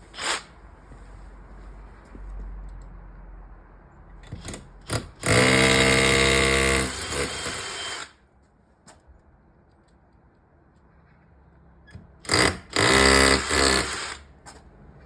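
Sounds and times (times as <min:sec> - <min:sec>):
hammer drill boring into concrete: 0:00.1 - 0:00.5, 0:05.2 - 0:08.2, 0:12.3 - 0:14.2.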